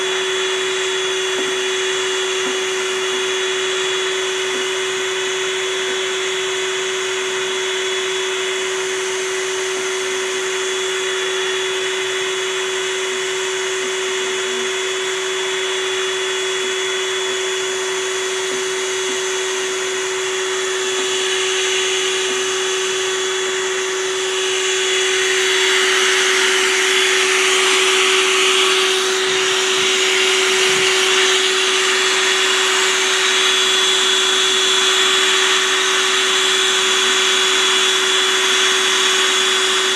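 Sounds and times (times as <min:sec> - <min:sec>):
small motor humming: 0:00.0 - 0:39.9.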